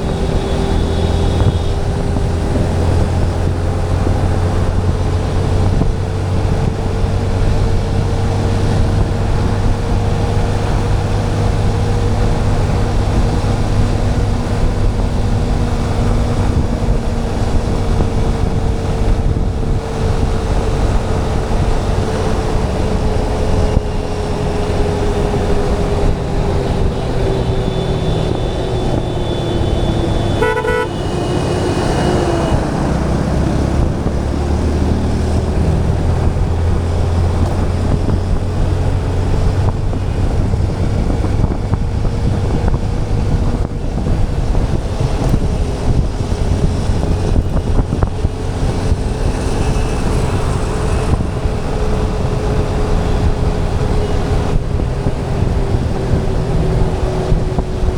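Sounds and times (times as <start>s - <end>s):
vehicle horns honking: 0.0s - 3.1s, 26.9s - 33.2s
motorcycle engine running: 0.0s - 57.9s
wind and road noise: 0.0s - 57.9s.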